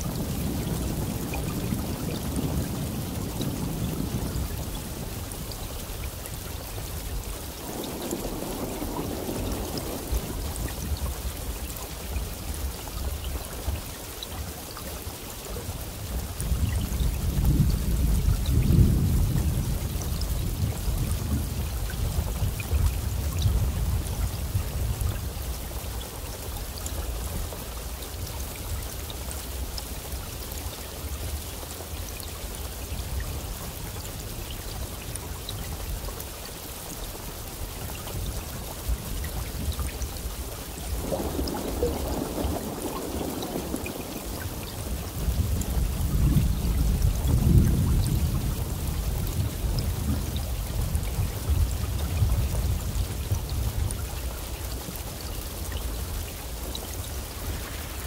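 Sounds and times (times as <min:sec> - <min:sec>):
low rumble of thunder: 0:00.0 - 0:30.4, 0:31.0 - 0:58.0
steady rain falling: 0:00.0 - 0:58.0
rushing noise: 0:57.1 - 0:58.0.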